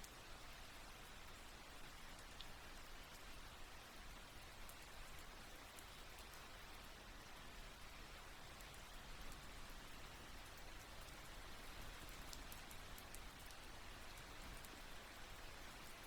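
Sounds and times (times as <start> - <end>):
light rain falling: 0.0 - 16.0
raindrop ticks: 11.9 - 14.8.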